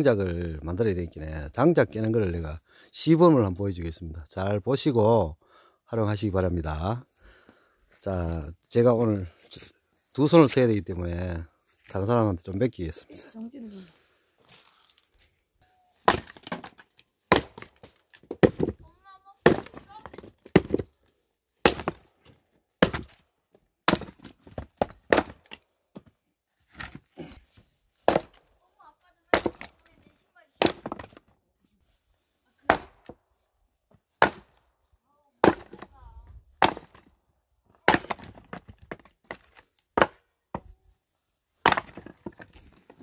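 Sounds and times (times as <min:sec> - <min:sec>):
axe chopping firewood: 0:16.0 - 0:18.8, 0:19.4 - 0:20.9, 0:21.6 - 0:23.2, 0:23.8 - 0:26.1, 0:28.0 - 0:28.5, 0:29.3 - 0:29.9, 0:30.6 - 0:31.3, 0:32.6 - 0:33.2, 0:34.2 - 0:34.6, 0:35.4 - 0:36.0, 0:36.6 - 0:37.1, 0:37.8 - 0:40.7, 0:41.6 - 0:43.0.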